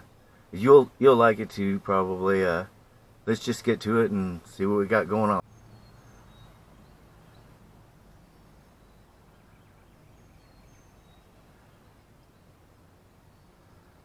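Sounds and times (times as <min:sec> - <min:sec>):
low steady hum: 0:00.0 - 0:14.0
high bird chirps: 0:05.4 - 0:13.7.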